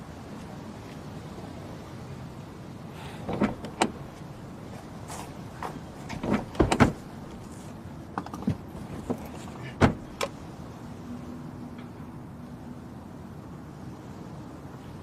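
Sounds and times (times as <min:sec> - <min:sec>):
clicks and knocks inside car: 0:03.2 - 0:10.4.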